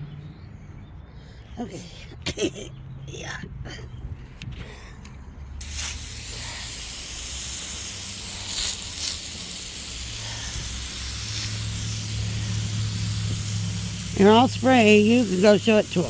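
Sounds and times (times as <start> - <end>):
water spray hissing: 5.6 - 16.0
sawmill engine hum: 9.7 - 16.0.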